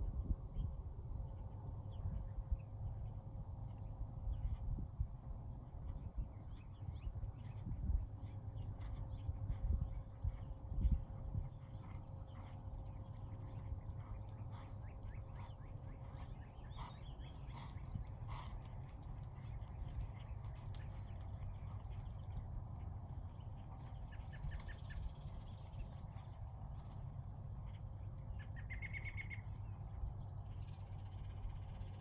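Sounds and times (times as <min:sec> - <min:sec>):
steady low rumble: 0:00.0 - 0:32.0
birds chirping: 0:06.4 - 0:32.0.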